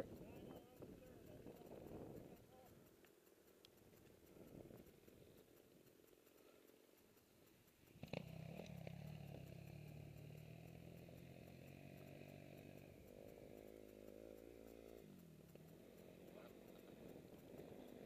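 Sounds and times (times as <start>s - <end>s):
dirt bike engine revving: 7.8s - 18.0s.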